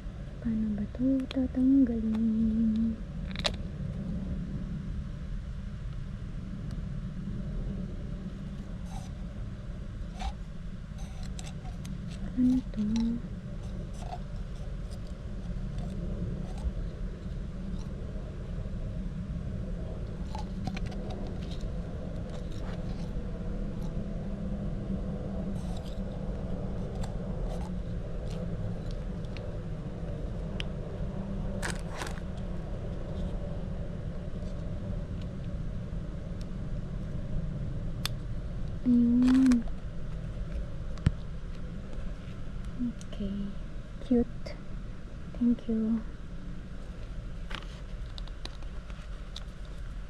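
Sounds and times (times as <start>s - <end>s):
low hum: 0.0s - 50.0s
plastic lamp being handled: 11.0s - 16.8s, 20.2s - 23.2s, 39.2s - 39.6s.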